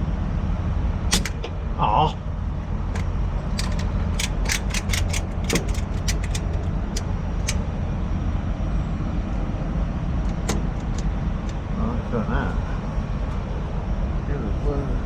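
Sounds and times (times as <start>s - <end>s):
diesel truck engine idling: 0.0s - 15.0s
metallic clicks and clanks: 1.1s - 1.6s, 2.9s - 7.6s, 10.2s - 11.6s.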